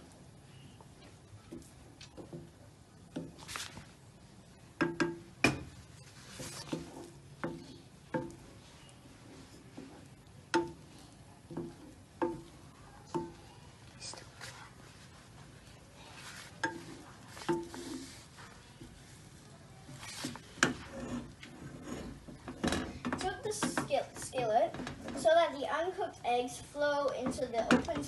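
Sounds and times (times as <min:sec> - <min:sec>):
spatula knocking on frying pan: 0:04.8 - 0:05.7, 0:06.8 - 0:08.5, 0:10.5 - 0:10.8, 0:11.5 - 0:13.4.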